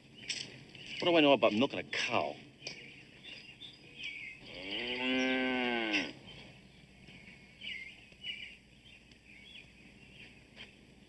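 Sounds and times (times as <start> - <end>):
cow mooing: 4.4 - 6.2.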